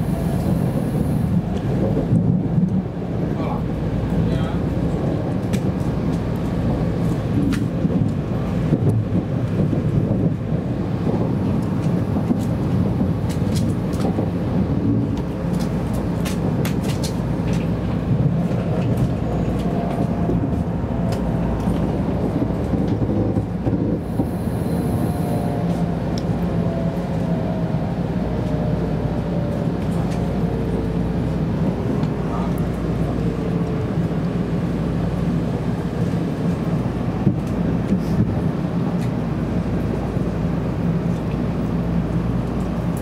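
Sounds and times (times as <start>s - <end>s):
train cabin low rumble: 0.0s - 43.0s
falling train whine: 17.9s - 36.1s.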